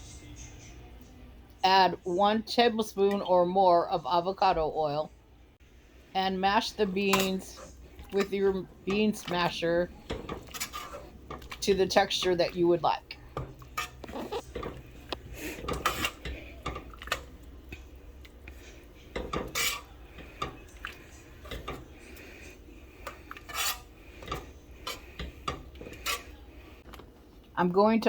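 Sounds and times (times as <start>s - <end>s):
masher clanking and scraping pot: 6.4s - 17.3s, 18.5s - 26.5s.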